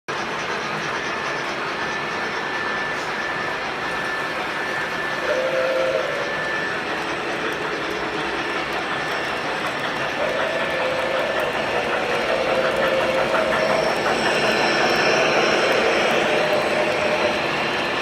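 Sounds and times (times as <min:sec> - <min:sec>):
model train wheels clicking: 0:00.1 - 0:18.0
steady running hum: 0:04.0 - 0:18.0.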